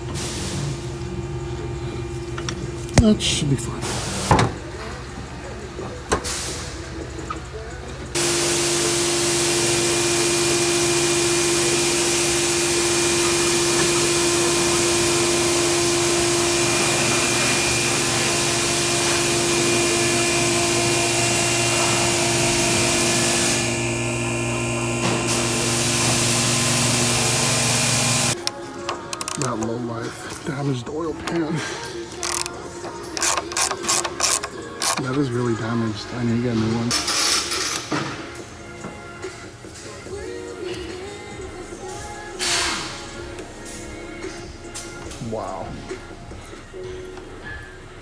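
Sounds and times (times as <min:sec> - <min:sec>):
loud hydraulic hiss: 0:00.0 - 0:01.0, 0:03.8 - 0:04.8, 0:06.1 - 0:07.1, 0:08.2 - 0:28.4, 0:36.9 - 0:38.4, 0:42.0 - 0:44.9
electric pump motor hum: 0:08.1 - 0:28.6, 0:33.2 - 0:35.2.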